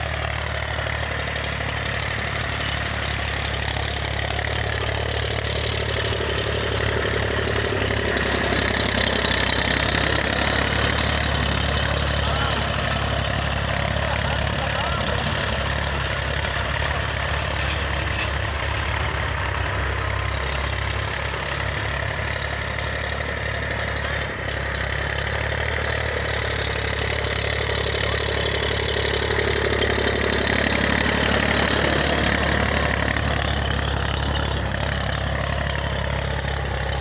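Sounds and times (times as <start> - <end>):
tractor diesel engine idling: 0.0 - 37.0.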